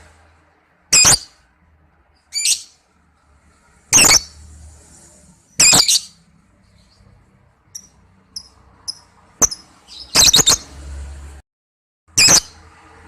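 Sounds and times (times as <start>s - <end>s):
lovebird chirping: 0.9s - 1.4s, 2.2s - 2.8s, 3.9s - 4.4s, 5.5s - 7.1s, 7.7s - 10.7s.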